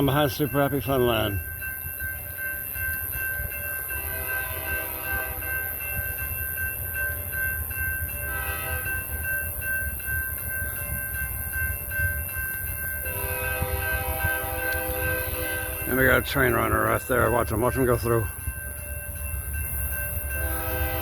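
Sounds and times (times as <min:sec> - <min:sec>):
locomotive air horn blasts: 0:04.0 - 0:05.5, 0:08.3 - 0:08.9, 0:13.1 - 0:15.8, 0:20.4 - 0:21.0.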